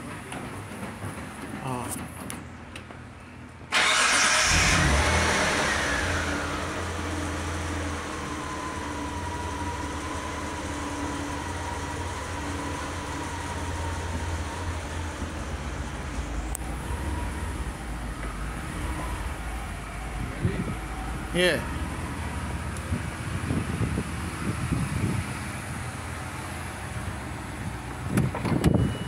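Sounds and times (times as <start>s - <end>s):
car engine starting and idling: 3.6s - 29.0s.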